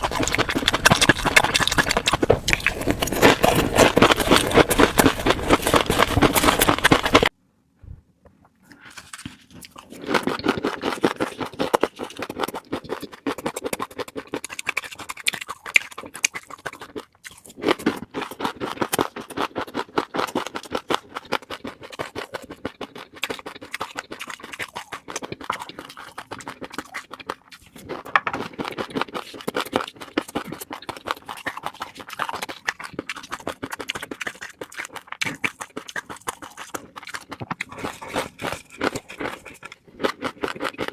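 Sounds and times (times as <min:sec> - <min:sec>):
fish roe crackling and popping: 0:00.0 - 0:07.3.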